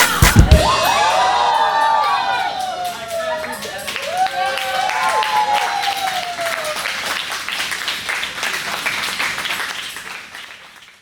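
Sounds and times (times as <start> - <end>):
shouted cheer: 0.0 - 7.9
group of people clapping: 0.0 - 11.0.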